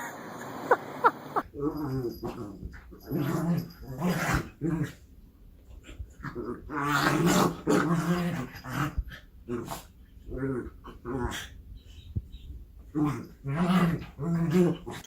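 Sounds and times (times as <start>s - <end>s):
dog growling: 1.4s - 5.0s, 5.8s - 11.6s, 12.9s - 15.0s.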